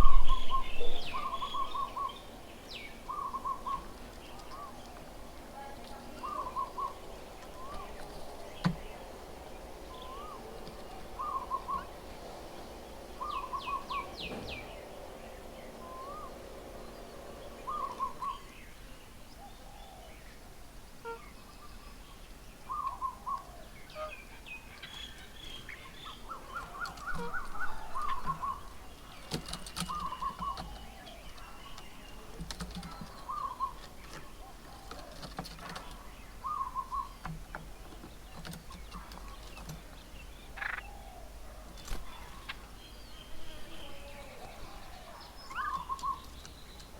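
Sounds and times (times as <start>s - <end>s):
birds chirping: 0.0s - 46.9s
bird two-note call: 21.0s - 21.4s.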